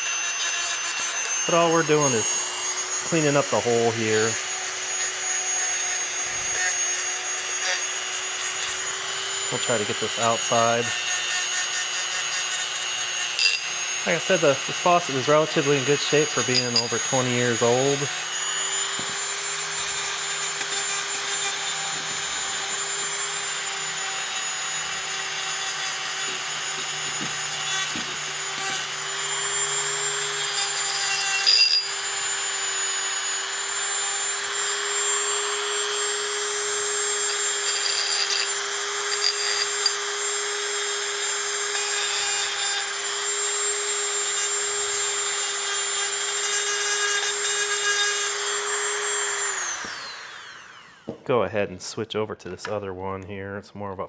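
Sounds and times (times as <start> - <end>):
rotary tool motor whine: 0.0 - 51.2
wire brush grating scrub: 3.0 - 4.4, 13.4 - 18.1, 36.6 - 40.0.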